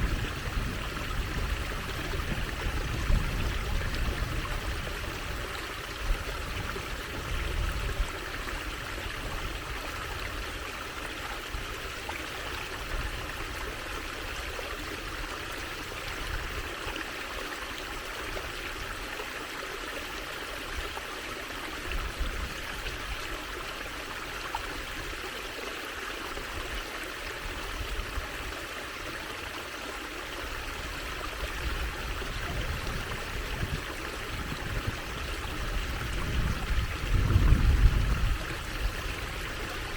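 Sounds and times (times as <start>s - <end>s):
stream water trickling over stones: 0.0s - 39.9s.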